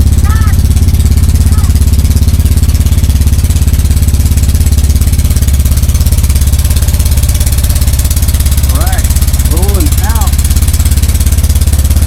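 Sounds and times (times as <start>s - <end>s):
boat engine throbbing: 0.0s - 12.0s.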